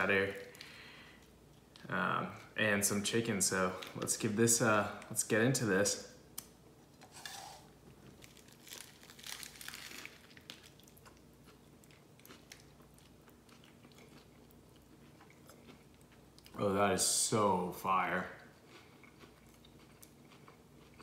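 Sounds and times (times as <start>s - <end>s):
crunching and chewing food: 6.9s - 16.6s, 18.0s - 21.0s.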